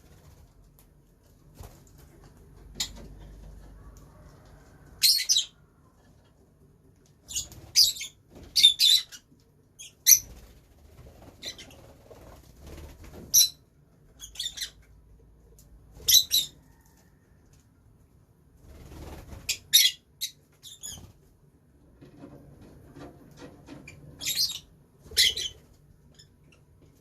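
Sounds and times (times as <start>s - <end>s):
lovebirds chirping: 5.0s - 5.6s, 13.3s - 14.8s, 24.2s - 26.6s.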